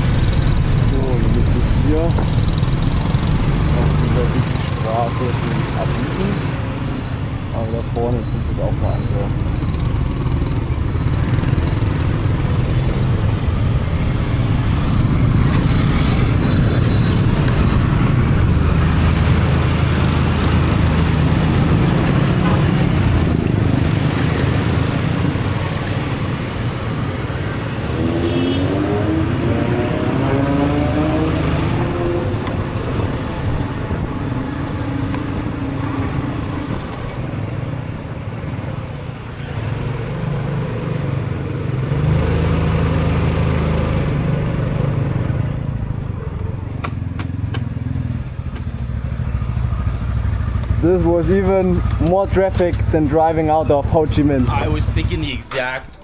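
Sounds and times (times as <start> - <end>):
engine revving up: 0.0 - 6.8, 13.8 - 37.0, 41.7 - 45.3
motorbike engine and road noise: 0.0 - 56.0.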